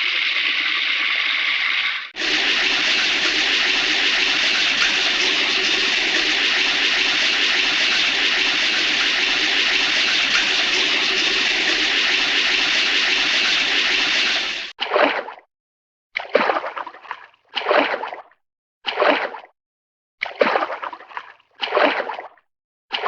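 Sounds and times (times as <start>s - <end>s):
loud rushing water: 2.2s - 14.7s.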